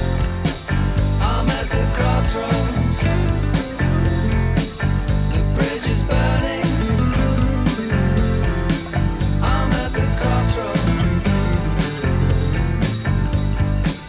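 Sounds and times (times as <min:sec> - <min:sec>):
instrumental rock music: 0:00.0 - 0:14.0.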